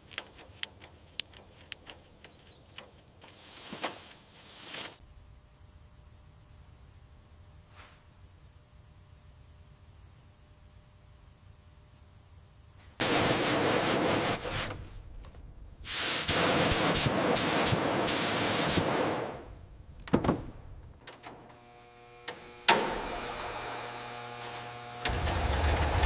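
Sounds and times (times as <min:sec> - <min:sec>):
sharp clicks: 0:00.0 - 0:03.3
loud hissing spray: 0:13.0 - 0:14.9, 0:15.9 - 0:19.5.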